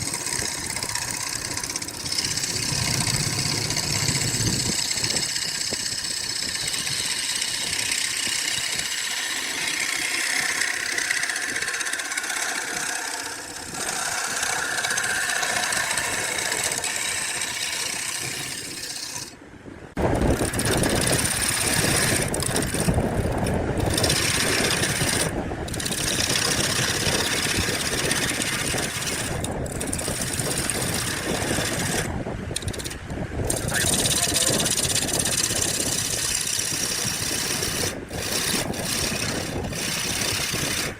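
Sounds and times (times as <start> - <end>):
machine running: 0.0 - 19.3.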